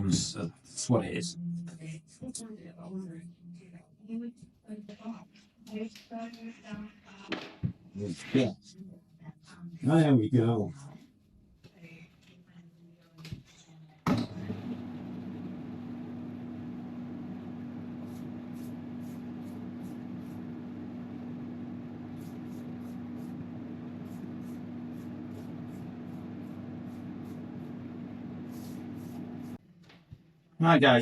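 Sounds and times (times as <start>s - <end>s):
extraction fan humming: 14.1s - 29.6s.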